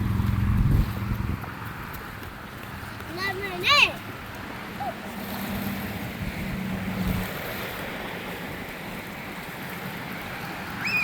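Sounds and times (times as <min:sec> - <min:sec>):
low hum: 0:00.0 - 0:02.1
wind buffeting microphone: 0:00.0 - 0:09.2
ocean waves washing on shore: 0:00.0 - 0:11.0.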